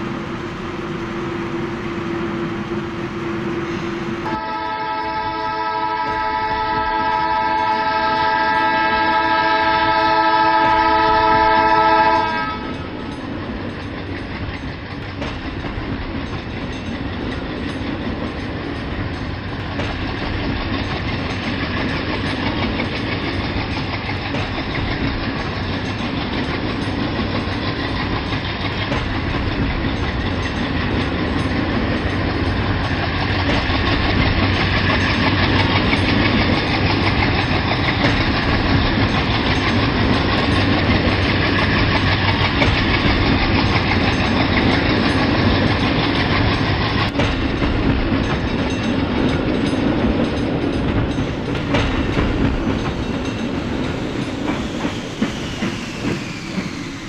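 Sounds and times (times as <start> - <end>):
train rumbling on rails: 0.0 - 57.0
train horn: 0.6 - 13.0.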